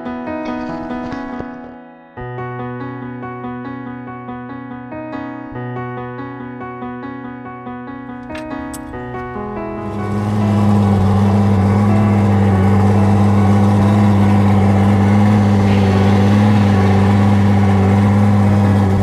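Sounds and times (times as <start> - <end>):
outboard motor running: 8.0 - 19.0.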